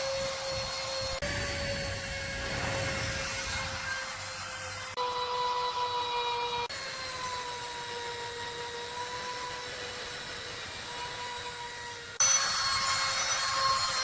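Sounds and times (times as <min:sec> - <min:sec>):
small power tool on metal: 0:00.0 - 0:14.0.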